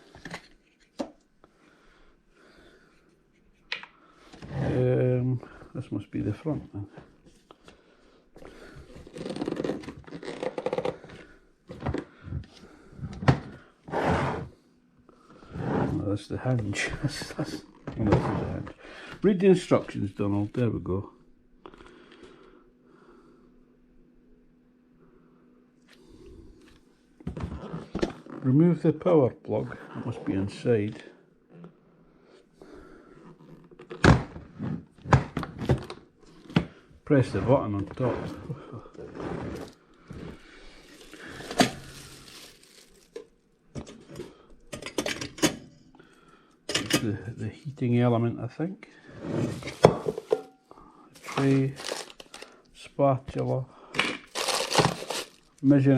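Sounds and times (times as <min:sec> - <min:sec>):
packaging rustling and rattling: 0:39.6 - 0:43.4, 0:51.2 - 0:52.6, 0:54.2 - 0:55.6.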